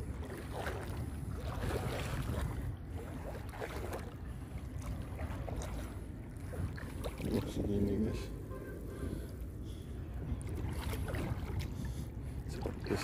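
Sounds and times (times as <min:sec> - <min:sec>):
wind rumble on microphone: 0:00.0 - 0:08.4
wading through swamp water: 0:00.0 - 0:13.0.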